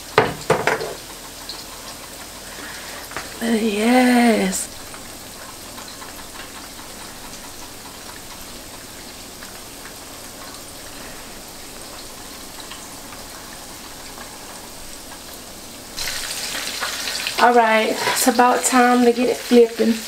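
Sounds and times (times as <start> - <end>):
deep-frying sizzle: 0.0 - 20.0
oil popping: 4.7 - 17.4.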